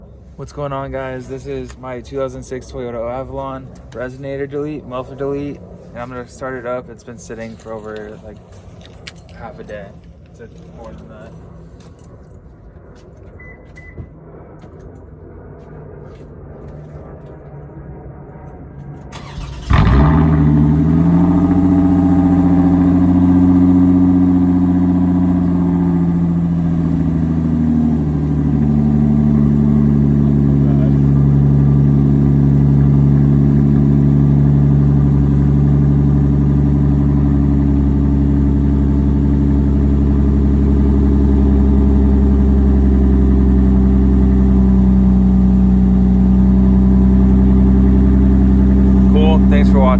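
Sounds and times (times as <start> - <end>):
car engine fast idle: 19.1 - 20.9
car engine cranking: 19.1 - 22.0.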